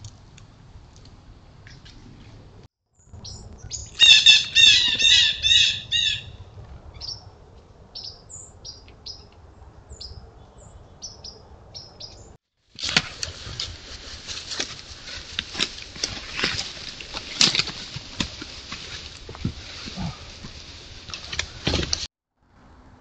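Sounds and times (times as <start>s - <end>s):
harsh bird calls: 3.0s - 9.3s
rustling noise: 12.6s - 22.1s.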